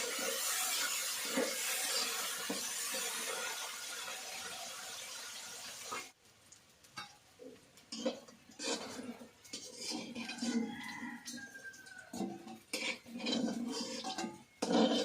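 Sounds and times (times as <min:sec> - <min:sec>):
pots and utensils clinking: 0:00.0 - 0:04.9, 0:06.9 - 0:15.0
cooking hiss: 0:00.0 - 0:15.0.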